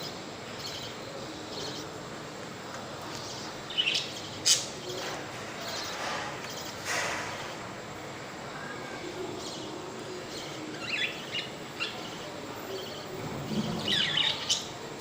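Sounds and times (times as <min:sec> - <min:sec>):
budgerigars chirping: 0:10.3 - 0:14.7.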